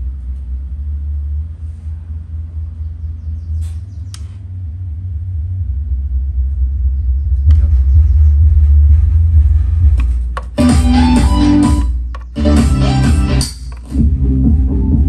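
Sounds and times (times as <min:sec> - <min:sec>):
deep bass rumble from subwoofer: 0:00.0 - 0:15.0
sharp clicks: 0:12.0 - 0:12.4.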